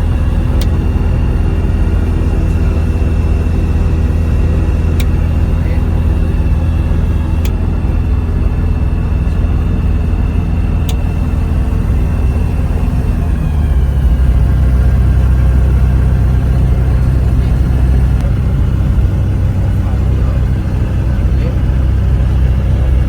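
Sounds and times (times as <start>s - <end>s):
aircraft engine low drone: 0.0s - 23.0s.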